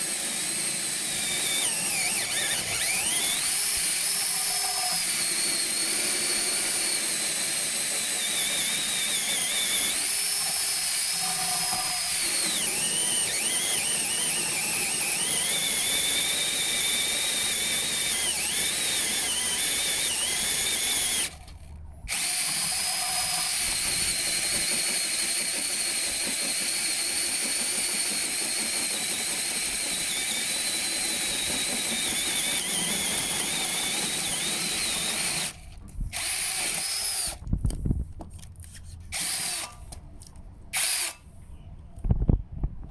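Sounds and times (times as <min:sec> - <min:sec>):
power drill with hole saw whining: 0:00.0 - 0:37.8, 0:38.6 - 0:40.0, 0:40.8 - 0:41.3.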